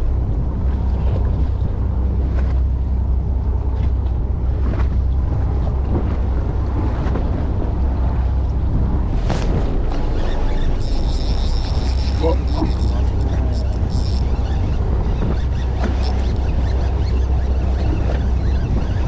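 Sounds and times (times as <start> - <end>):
boat engine rumble: 0.0 - 19.0
water washing around hull: 0.0 - 19.0
wind buffeting microphone: 0.0 - 19.0.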